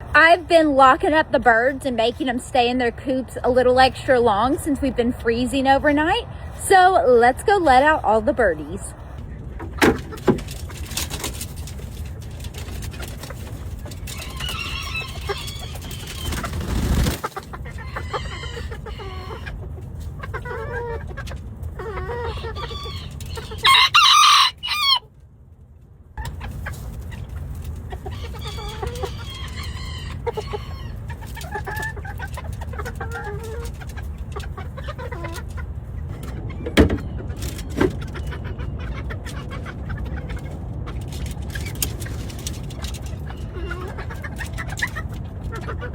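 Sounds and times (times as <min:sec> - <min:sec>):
chickens clucking: 0:00.0 - 0:25.3, 0:26.2 - 0:45.9
rooster crowing: 0:22.6 - 0:25.0.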